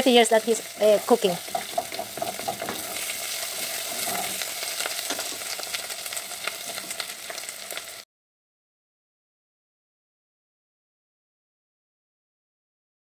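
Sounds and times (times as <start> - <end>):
mushrooms sizzling in a pot: 0.0 - 8.1
wooden spoon scraping a pot: 0.8 - 7.8.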